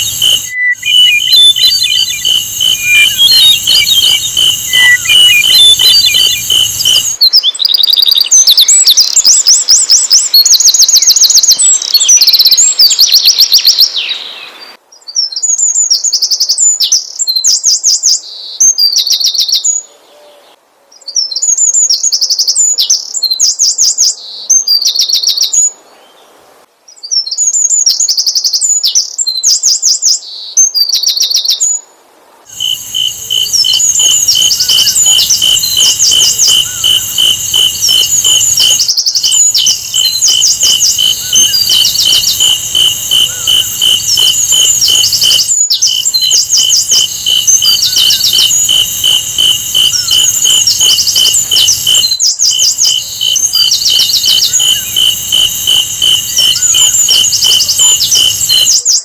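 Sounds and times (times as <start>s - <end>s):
rapid high pulsing: 0.0s - 7.2s, 32.5s - 58.7s
bird high trilled song: 0.0s - 14.8s, 32.5s - 59.0s.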